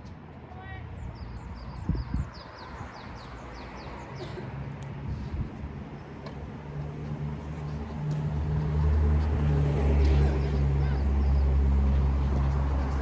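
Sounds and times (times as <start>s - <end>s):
vehicle engine humming: 3.3s - 13.0s.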